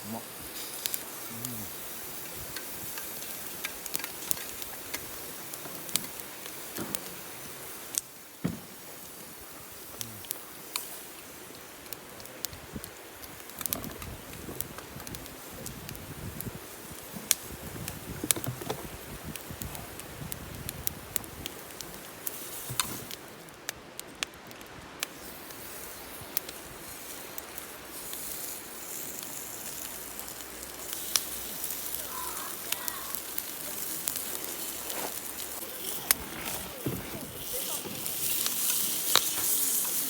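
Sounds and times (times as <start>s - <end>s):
campfire crackling: 0.0s - 40.0s
fire pops and snaps: 0.0s - 40.0s
steady fire hiss: 0.0s - 40.0s.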